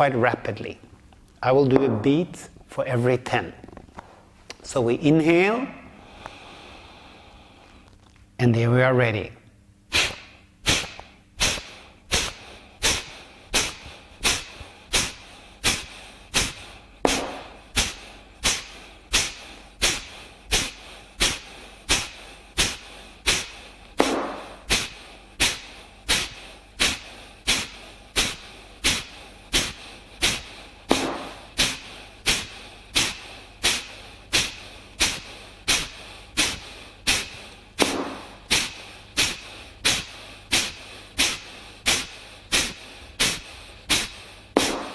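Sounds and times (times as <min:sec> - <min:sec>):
quiet inhales: 0:05.8 - 0:07.9, 0:11.5 - 0:44.6
forceful nasal exhalations: 0:09.9 - 0:44.9.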